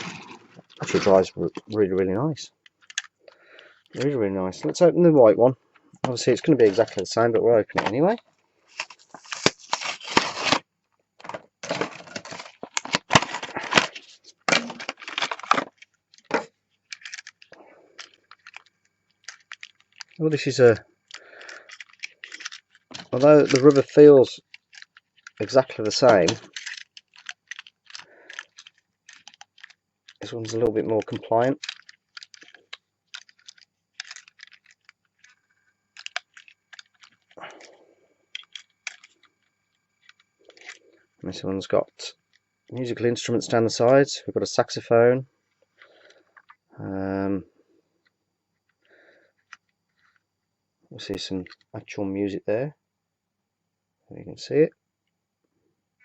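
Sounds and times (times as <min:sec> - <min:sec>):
toy packaging crackling and clicking: 0:00.0 - 0:04.8, 0:05.7 - 0:10.6, 0:11.2 - 0:40.9, 0:45.7 - 0:46.6, 0:48.6 - 0:50.2, 0:51.1 - 0:51.7.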